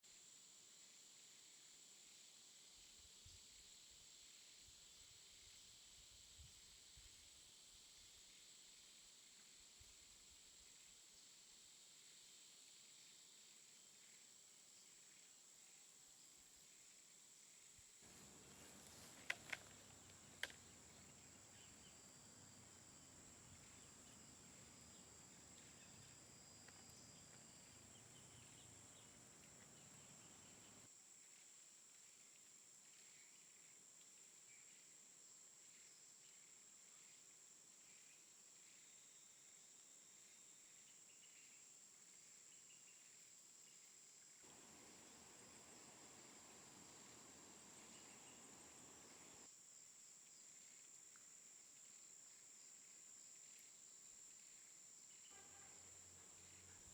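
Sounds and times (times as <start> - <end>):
sharp clicks: 18.1 - 30.8.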